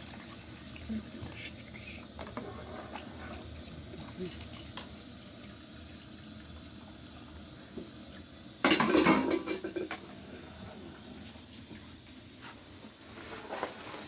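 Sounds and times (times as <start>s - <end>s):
pots and dishes clattering: 8.6s - 10.1s.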